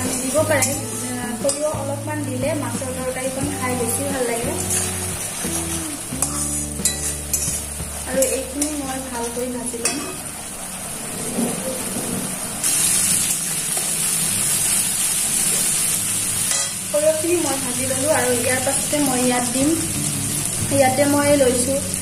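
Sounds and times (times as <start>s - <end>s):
onions sizzling in hot oil: 0.0s - 22.0s
metal spatula scraping a pan: 4.5s - 10.2s.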